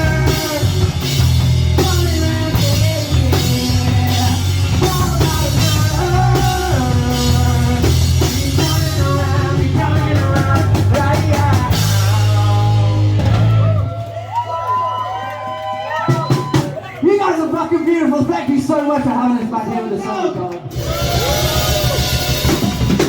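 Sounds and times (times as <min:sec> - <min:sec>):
rapid drum hits: 0:00.0 - 0:13.9
rock band playing live: 0:00.0 - 0:14.4, 0:20.5 - 0:23.0.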